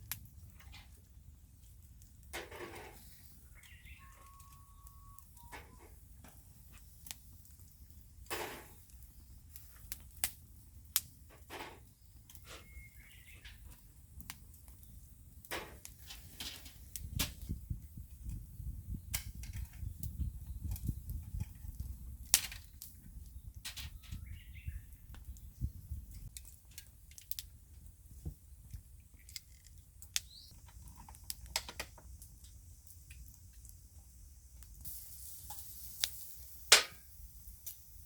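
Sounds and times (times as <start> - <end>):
sharp fire pops: 0.0 - 0.9, 5.8 - 30.6, 34.6 - 38.0
wood fire crackling: 0.0 - 38.0
bird chirping faintly: 3.4 - 5.6, 11.9 - 13.7.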